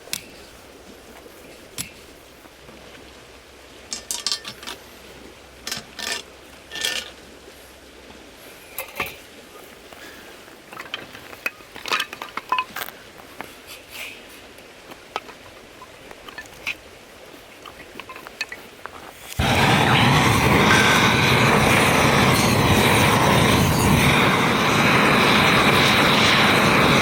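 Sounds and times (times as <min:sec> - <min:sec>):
metal items clinking: 0:03.9 - 0:04.8.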